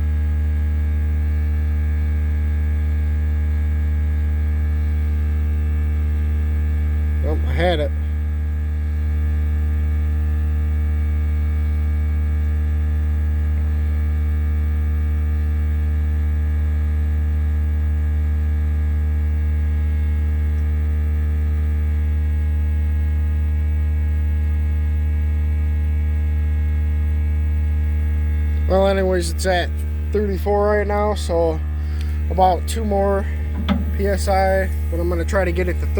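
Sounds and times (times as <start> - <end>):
air compressor motor humming: 27.0 - 35.9.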